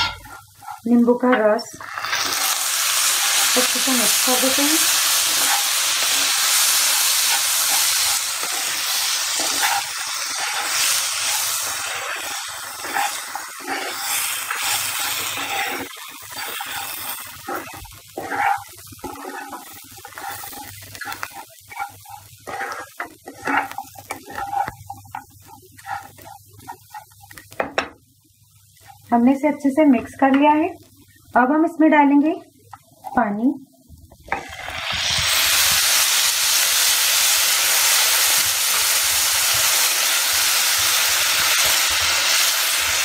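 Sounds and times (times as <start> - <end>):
wooden spatula scraping: 0.0 - 27.7
noodles sizzling in a pan: 0.0 - 43.0.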